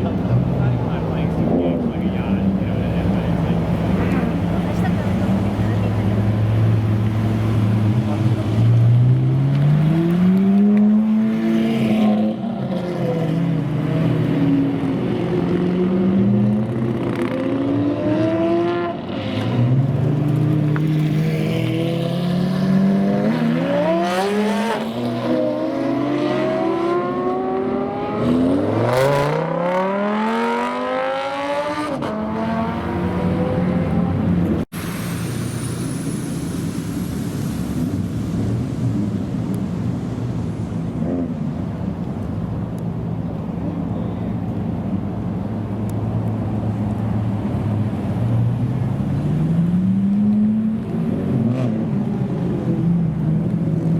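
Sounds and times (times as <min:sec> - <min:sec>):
supercar engines revving: 0:00.0 - 0:34.6.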